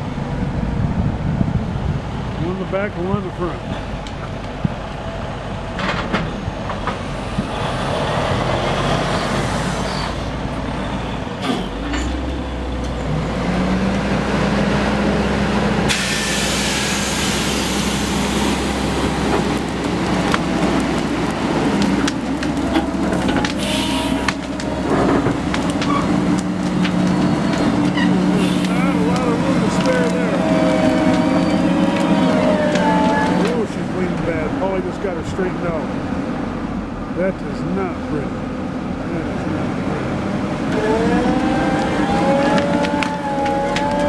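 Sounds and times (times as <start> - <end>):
heavy diesel engines under load: 0.0 - 44.0
loud hiss: 15.9 - 18.8, 23.6 - 24.3.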